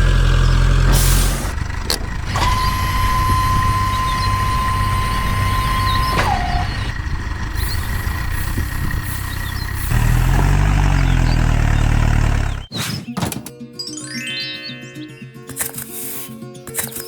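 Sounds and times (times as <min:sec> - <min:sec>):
engine rumbling: 0:00.0 - 0:12.7.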